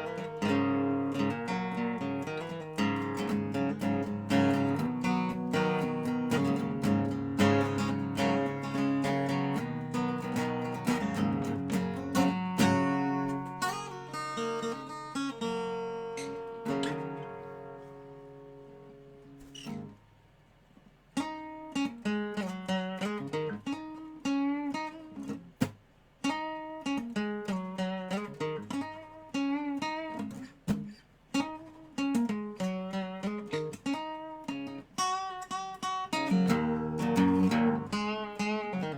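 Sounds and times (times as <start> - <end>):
resonator guitar chords: 0.0 - 19.6, 35.8 - 38.9
sliding guitar riff: 0.0 - 20.0, 26.3 - 38.9.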